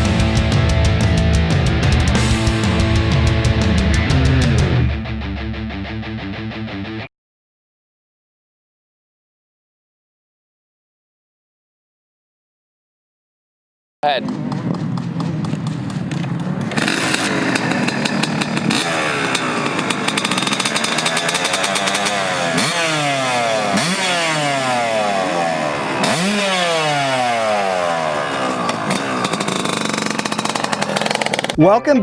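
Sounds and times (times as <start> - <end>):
dirt bike engine revving: 0.0 - 4.9, 14.0 - 31.7.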